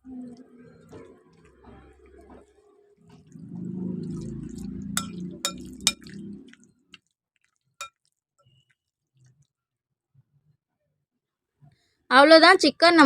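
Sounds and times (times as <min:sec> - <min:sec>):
squelching marinade: 0:00.2 - 0:09.4
clinks against bowl: 0:05.0 - 0:06.1.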